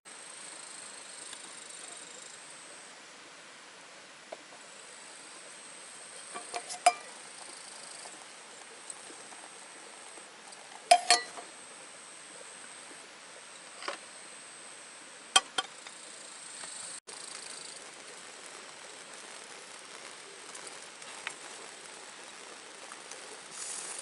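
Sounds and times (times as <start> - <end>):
faint steady hiss: 0.1 - 24.0
metal cookware clinking: 6.3 - 7.1, 10.9 - 11.4.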